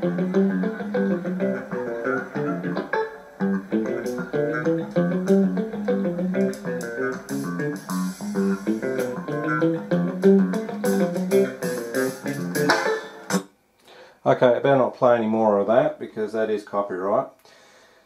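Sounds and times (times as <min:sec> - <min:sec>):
music with guitar and bass: 0:00.0 - 0:13.4.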